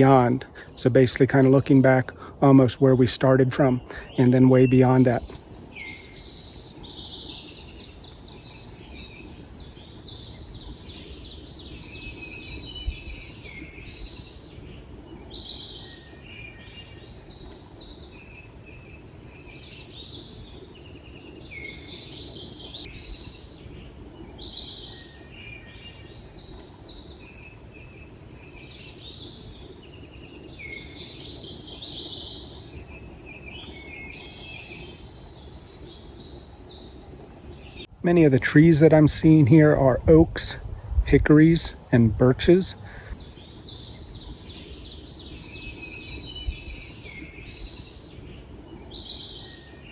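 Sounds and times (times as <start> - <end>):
songbirds chirping: 0.0 - 49.9.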